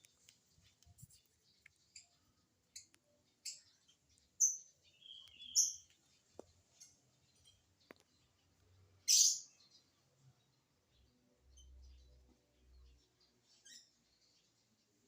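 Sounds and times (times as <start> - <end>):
lovebird chirping: 0.0 - 10.5.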